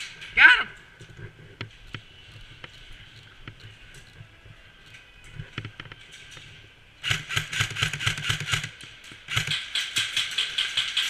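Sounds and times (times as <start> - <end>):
airsoft gun firing full-auto: 7.0 - 9.8.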